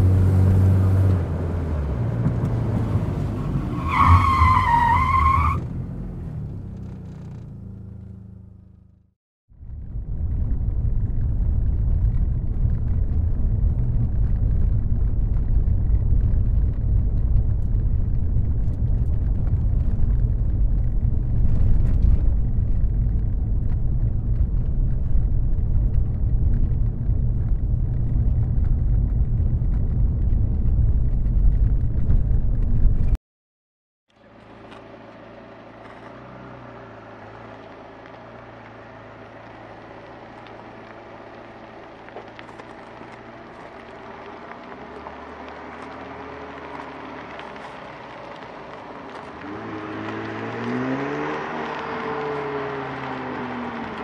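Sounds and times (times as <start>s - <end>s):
deep car engine rumble: 0.0s - 33.2s, 34.1s - 54.0s.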